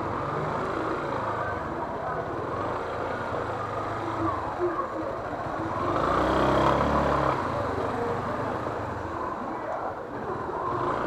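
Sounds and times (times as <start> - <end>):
street traffic engines: 0.0 - 11.0.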